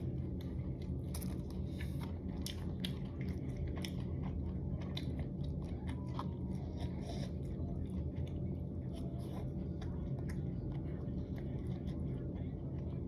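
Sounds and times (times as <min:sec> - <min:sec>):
low steady hum: 0:00.0 - 0:13.0
mouth chewing crunchy food: 0:00.0 - 0:13.0.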